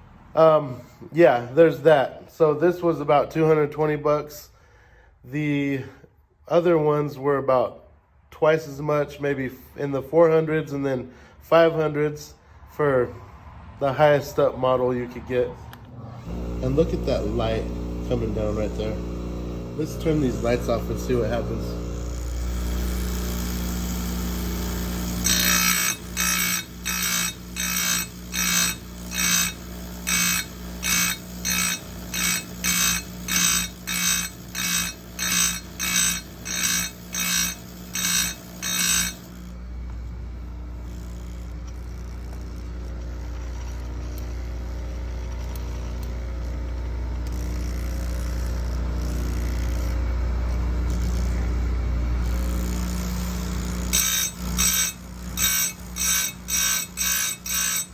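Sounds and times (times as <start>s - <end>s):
grinder motor humming: 16.0s - 57.9s
grinding whine of steel on wheel: 16.0s - 57.9s.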